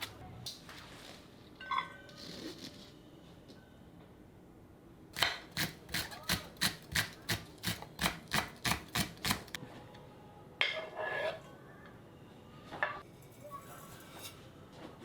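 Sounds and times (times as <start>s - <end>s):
knife chopping on cutting board: 5.2s - 9.6s.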